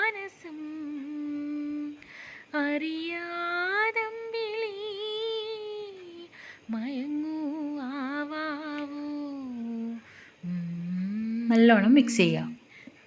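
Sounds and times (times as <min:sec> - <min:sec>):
woman humming a tune: 0:00.0 - 0:02.0, 0:02.6 - 0:12.7
woman breathing in: 0:02.0 - 0:02.5, 0:06.3 - 0:06.7, 0:10.0 - 0:10.6.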